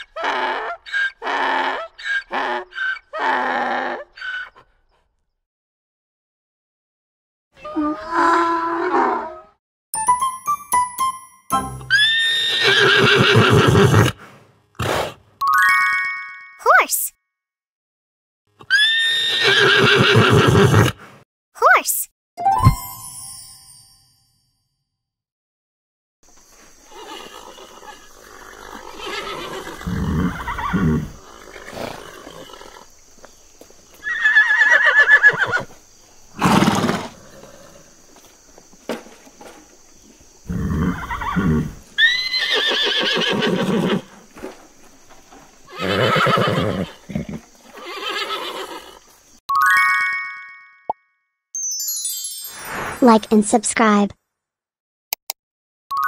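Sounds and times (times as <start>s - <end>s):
horse neighing: 11.9s - 14.2s, 18.6s - 21.0s, 26.9s - 32.9s, 34.0s - 35.7s, 36.4s - 37.9s, 40.5s - 44.1s, 45.7s - 49.1s
short chime-like jingle: 22.4s - 24.8s, 49.5s - 53.1s.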